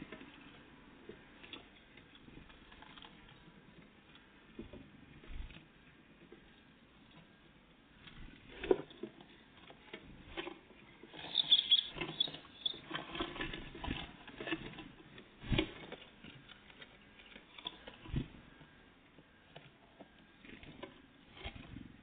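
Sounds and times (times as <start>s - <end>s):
high-pitched bird sounds: 11.2s - 12.9s.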